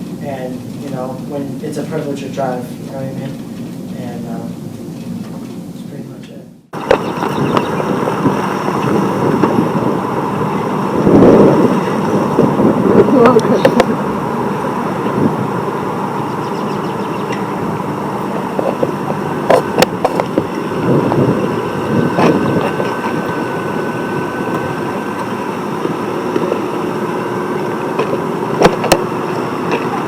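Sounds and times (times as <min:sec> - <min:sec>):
vehicle engine running: 0:06.6 - 0:30.0.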